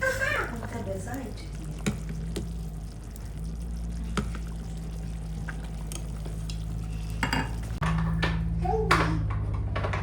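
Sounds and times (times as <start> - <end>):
steady low hum: 0.5 - 10.0.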